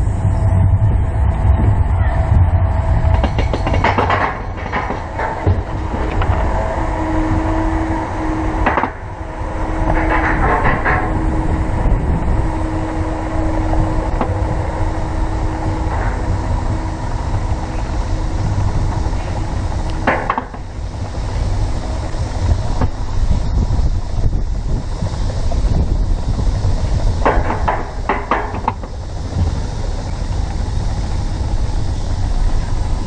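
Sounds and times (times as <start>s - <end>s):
roller coaster rumble: 0.0s - 33.0s
wheel whine: 0.0s - 33.0s
metallic clacks: 3.0s - 6.6s.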